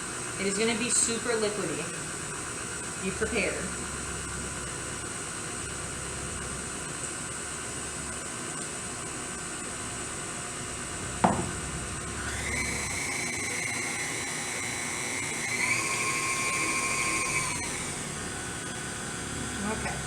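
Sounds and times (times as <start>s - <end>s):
stand mixer motor whining: 0.0s - 20.0s
sharp knock: 11.2s - 11.6s.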